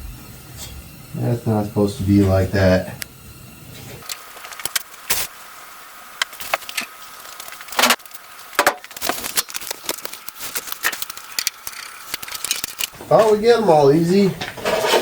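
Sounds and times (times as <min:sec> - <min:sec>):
screwdriver scraping: 0:14.5 - 0:15.0.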